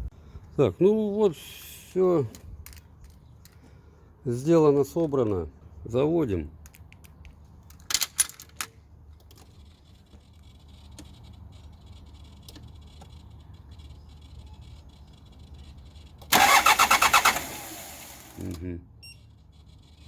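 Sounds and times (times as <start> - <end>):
diesel engine starter cranking: 15.9 - 18.6
diesel engine catching: 16.3 - 18.5.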